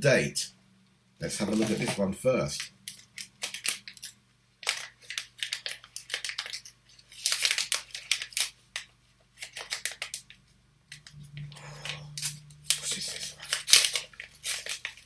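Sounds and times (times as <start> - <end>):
packaging crackling and snipping: 1.4 - 2.0, 2.6 - 11.1, 12.1 - 15.0.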